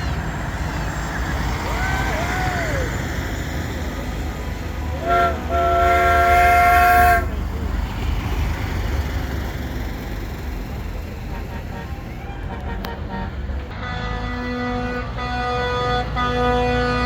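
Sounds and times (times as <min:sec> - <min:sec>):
low engine rumble: 0:00.0 - 0:17.0
truck air horn: 0:04.9 - 0:07.4, 0:11.3 - 0:17.0.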